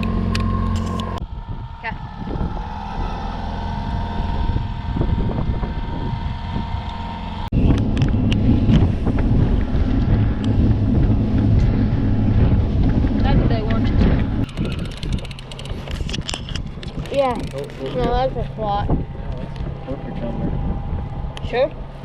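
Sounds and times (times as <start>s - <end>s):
boat motor running: 0.0s - 22.0s
heavy rumble: 0.0s - 22.0s
wind buffeting microphone: 0.0s - 22.0s.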